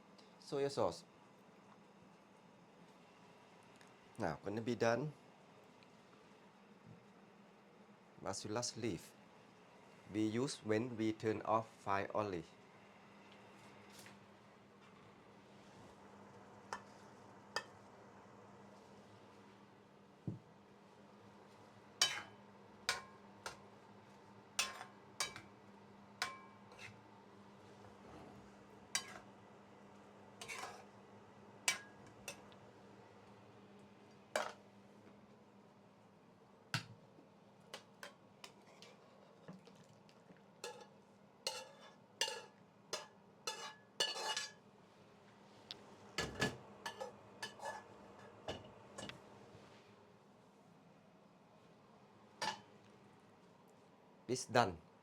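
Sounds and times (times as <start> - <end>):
faint steady hum: 0.0 - 55.0
utensil clinking against pot: 24.6 - 25.4, 40.6 - 40.9, 41.5 - 44.6.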